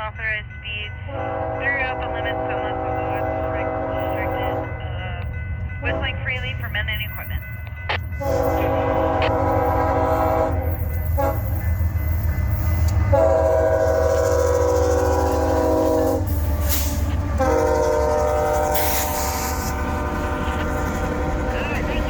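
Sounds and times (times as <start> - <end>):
train rumbling past: 0.0 - 22.0
locomotive air horn blasts: 1.1 - 4.9, 5.8 - 6.6, 8.2 - 11.6, 13.0 - 22.0.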